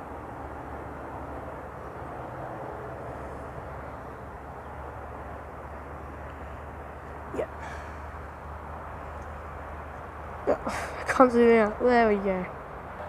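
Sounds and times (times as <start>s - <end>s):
electric train rumbling: 0.0s - 9.0s.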